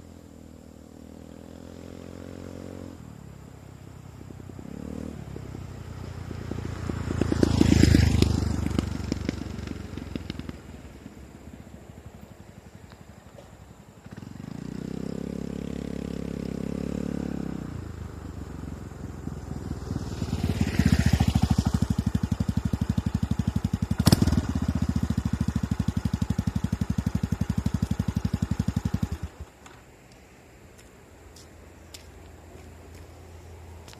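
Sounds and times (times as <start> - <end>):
scooter engine running: 4.2 - 29.5.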